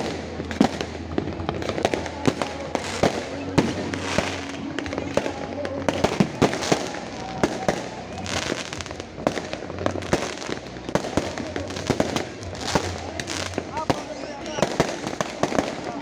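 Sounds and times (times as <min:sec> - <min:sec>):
distant fireworks explosions and crackle: 0:00.0 - 0:16.0
fireworks bangs and pops: 0:00.0 - 0:16.0.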